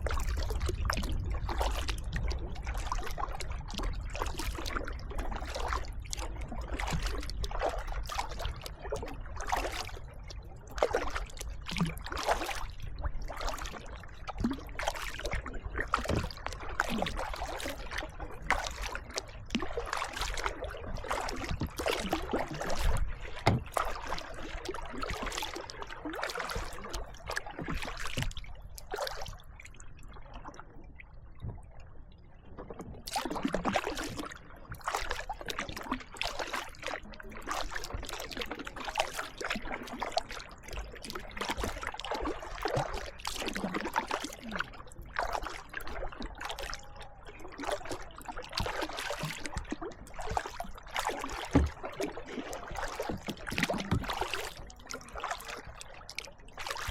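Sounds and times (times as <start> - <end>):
water dripping off paddle: 0.0 - 10.0, 10.7 - 29.3, 32.7 - 46.8, 47.5 - 56.9
paddle splashing in water: 0.0 - 30.8, 32.5 - 56.9.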